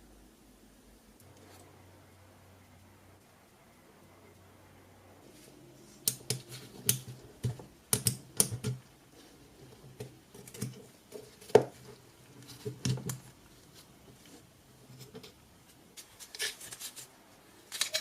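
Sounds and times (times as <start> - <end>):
small parts clicking and tapping: 6.0 - 8.8, 9.8 - 13.4, 17.7 - 18.0.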